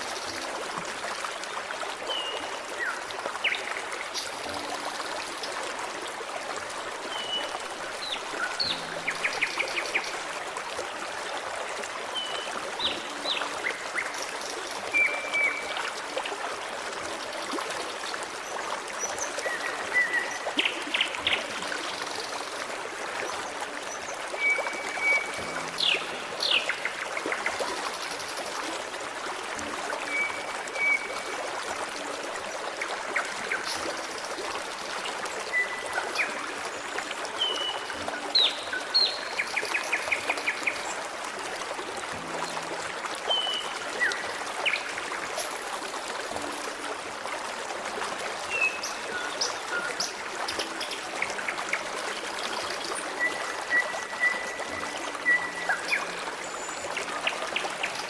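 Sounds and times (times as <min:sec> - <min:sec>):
stream babbling: 0:00.0 - 0:58.0.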